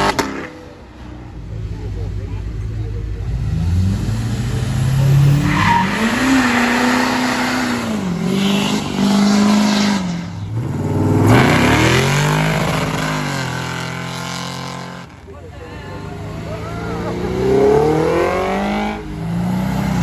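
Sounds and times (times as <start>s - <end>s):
car engine revving: 0.0s - 20.0s
tyres squealing: 5.0s - 14.0s.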